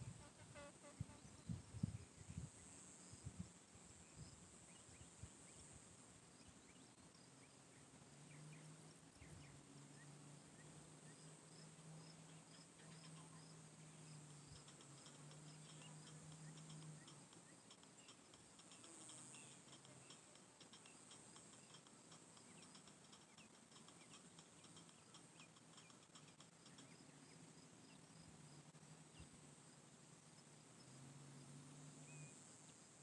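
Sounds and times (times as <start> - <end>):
high insect drone: 8.4 - 33.0.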